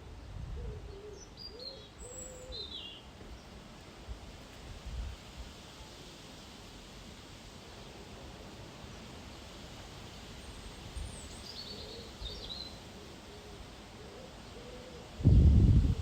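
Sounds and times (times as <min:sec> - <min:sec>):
steady hiss: 0:00.0 - 0:16.0
low hooting or cooing call: 0:00.5 - 0:02.8, 0:11.7 - 0:15.2.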